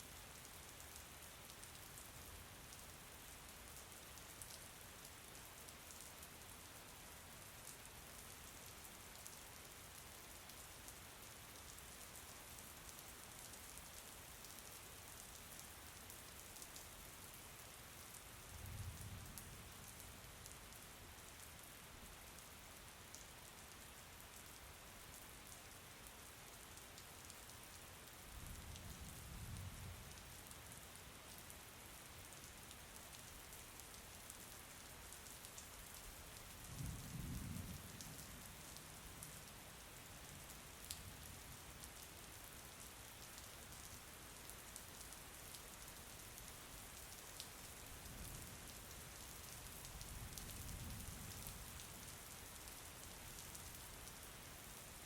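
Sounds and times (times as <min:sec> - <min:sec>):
faint rainfall hissing: 0:00.0 - 0:55.0.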